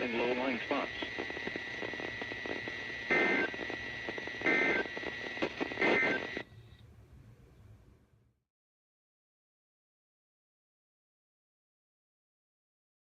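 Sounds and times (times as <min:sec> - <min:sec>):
shrill data tones: 0:00.0 - 0:06.4
radio static: 0:00.0 - 0:06.5.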